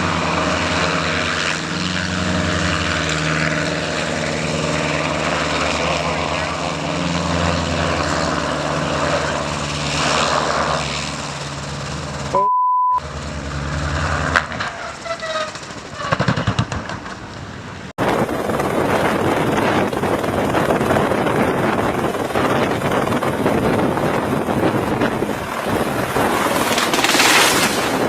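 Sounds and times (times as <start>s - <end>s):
aircraft engine drone: 0.0s - 16.0s, 16.8s - 28.0s
short beep: 12.4s - 13.0s
wind buffeting microphone: 18.0s - 28.0s.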